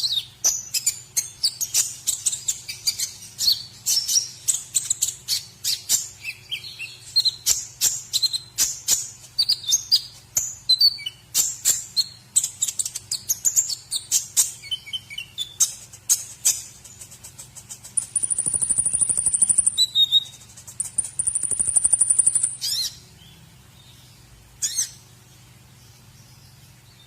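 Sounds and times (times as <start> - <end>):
songbird singing fast varied song: 0.0 - 27.0
faint low hum: 14.8 - 27.0.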